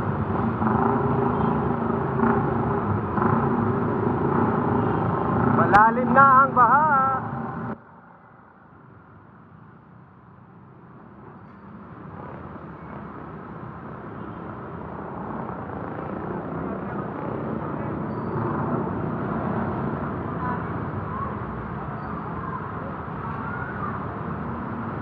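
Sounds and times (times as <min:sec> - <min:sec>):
vehicle engine: 0:00.0 - 0:07.8
road noise: 0:00.0 - 0:25.0.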